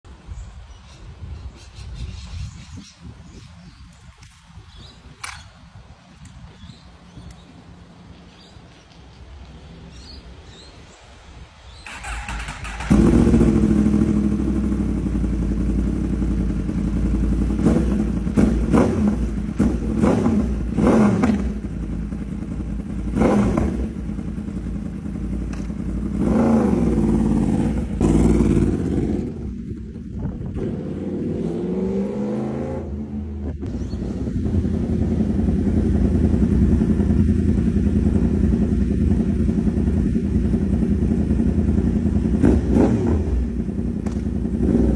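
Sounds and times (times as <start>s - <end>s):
motorcycle engine revving: 11.9s - 44.9s.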